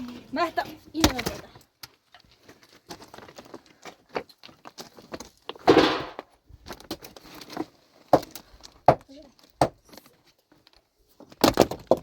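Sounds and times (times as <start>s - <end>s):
stones knocking: 5.1s - 6.3s, 11.3s - 12.0s
stones rattling crash: 5.1s - 7.1s, 11.2s - 12.0s.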